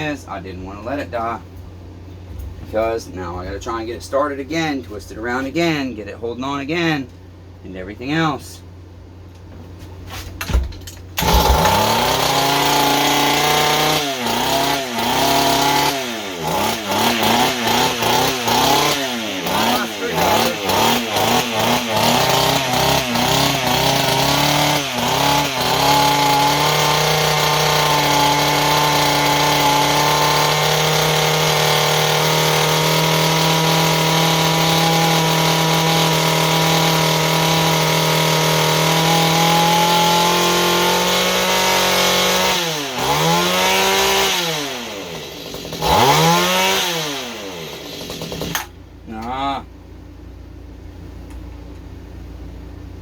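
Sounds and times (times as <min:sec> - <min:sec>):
small gasoline engine running: 0:11.2 - 0:48.8.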